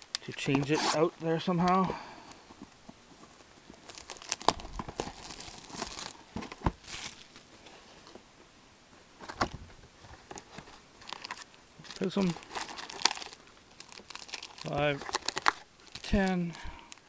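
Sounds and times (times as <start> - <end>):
foil wrappers crinkling and tearing: 3.8 - 7.5, 10.3 - 17.0.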